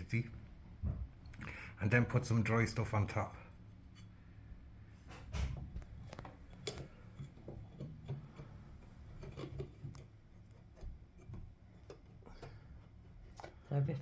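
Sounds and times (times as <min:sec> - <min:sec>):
low background hum: 0:00.0 - 0:14.0
small clicks taps and rustles: 0:05.2 - 0:14.0.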